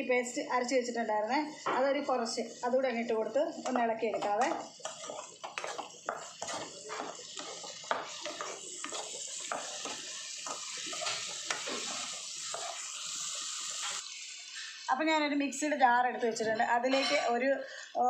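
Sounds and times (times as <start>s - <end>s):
vegetables sizzling in oil: 0.0s - 18.0s
spatula scraping and tapping pan: 3.5s - 14.0s.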